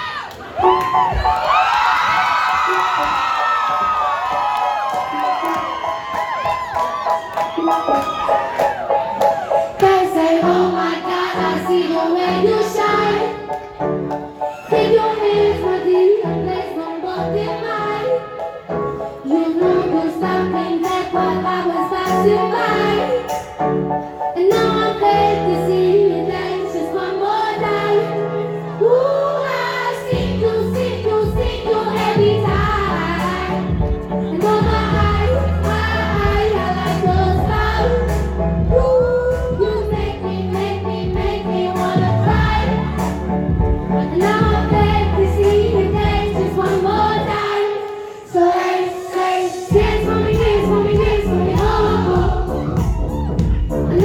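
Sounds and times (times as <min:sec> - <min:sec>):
woman singing pop live: 0:28.8 - 0:40.3.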